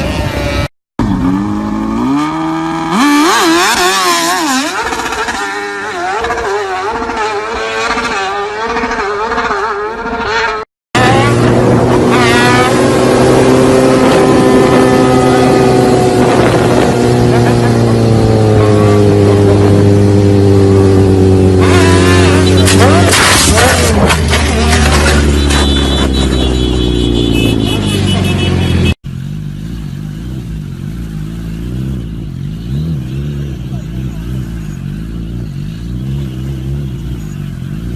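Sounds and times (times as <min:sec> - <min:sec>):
engine at high revs: 0:00.0 - 0:37.9
loud motorcycle engine running: 0:11.0 - 0:23.8.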